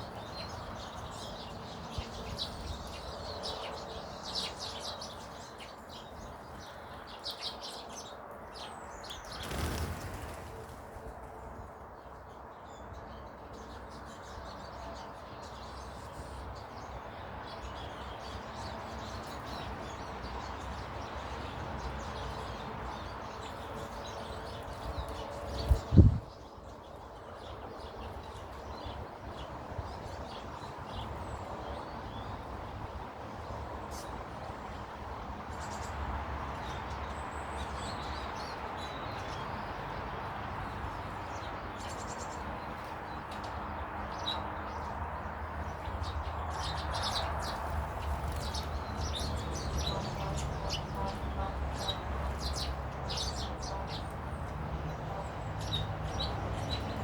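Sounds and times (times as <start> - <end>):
small birds chirping: 0.0 - 11.0, 35.5 - 57.0.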